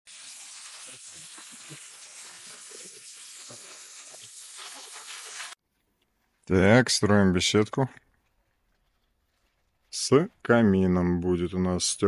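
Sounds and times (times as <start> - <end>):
steady hiss: 0.1 - 5.6.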